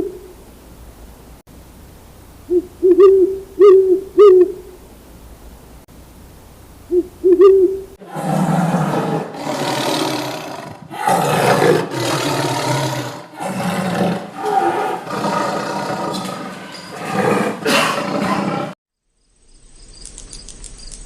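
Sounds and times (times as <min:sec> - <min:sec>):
animal harsh calls: 0:06.9 - 0:18.8.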